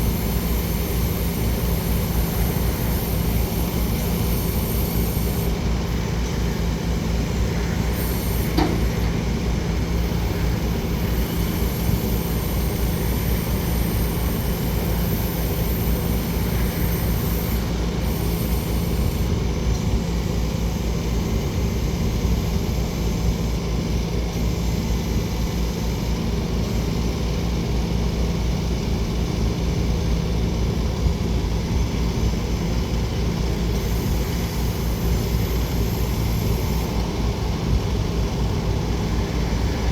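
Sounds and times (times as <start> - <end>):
engine drone: 0.0 - 39.9.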